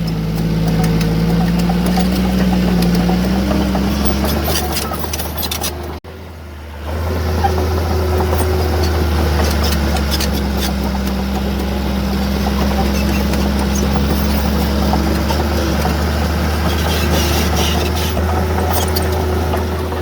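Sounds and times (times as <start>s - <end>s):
clicks and clanks: 0.0s - 6.0s
heavy diesel engine running: 0.0s - 20.0s.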